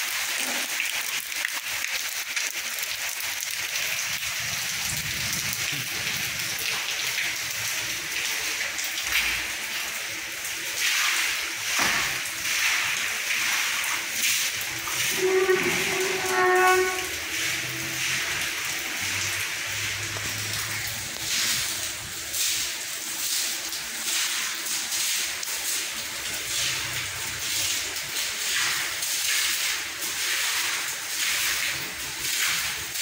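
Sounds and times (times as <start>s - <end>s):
steady rain hiss: 2.5s - 10.8s, 11.4s - 24.3s.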